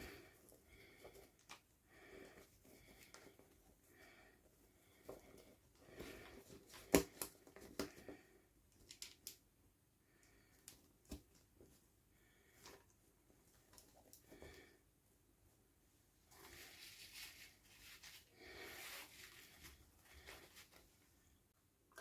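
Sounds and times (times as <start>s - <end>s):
plastic toys and packaging handled: 4.9s - 9.5s, 16.2s - 21.2s.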